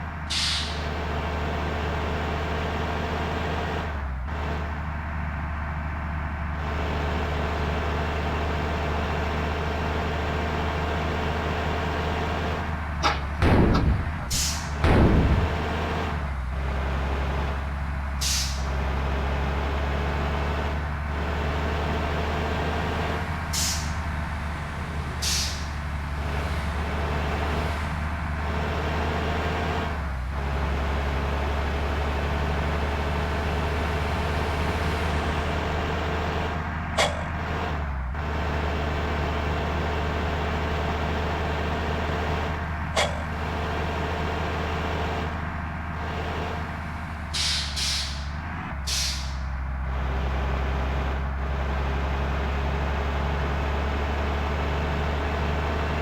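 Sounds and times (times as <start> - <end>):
bus diesel engine running: 0.0 - 56.0
air brake hisses: 0.3 - 0.8, 14.3 - 14.7, 18.2 - 18.7, 23.6 - 24.0, 25.2 - 25.7, 47.4 - 48.3, 48.9 - 49.5.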